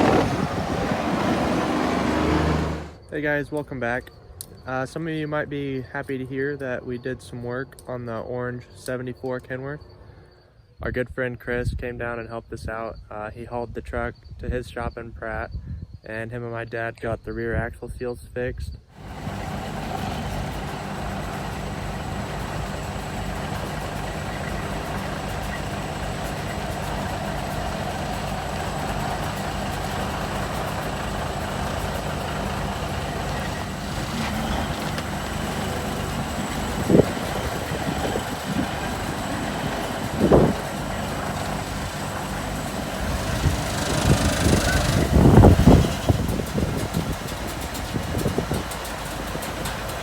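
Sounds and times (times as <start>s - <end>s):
diesel truck engine idling: 0.0s - 3.0s, 19.0s - 50.0s.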